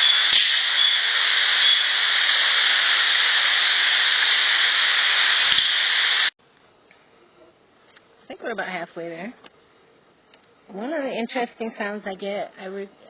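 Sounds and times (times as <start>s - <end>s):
loud steady hiss: 0.0s - 6.8s.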